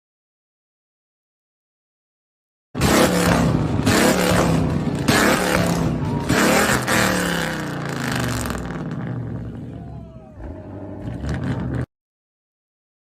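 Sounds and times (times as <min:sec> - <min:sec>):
road vehicle noise with surges: 0:02.8 - 0:11.9.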